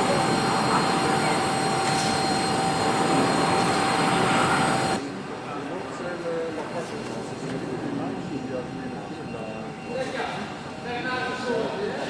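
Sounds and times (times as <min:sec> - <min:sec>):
jet aircraft flying past: 0:00.0 - 0:05.0.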